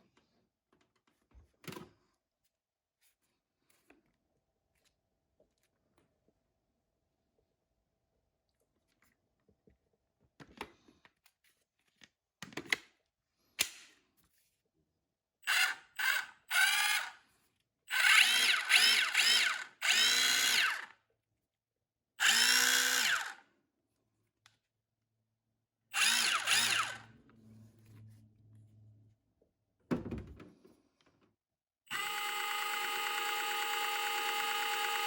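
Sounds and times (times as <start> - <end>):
rotary hammer motor whine: 17.9 - 20.9, 22.2 - 23.4, 26.0 - 27.0, 31.9 - 35.0.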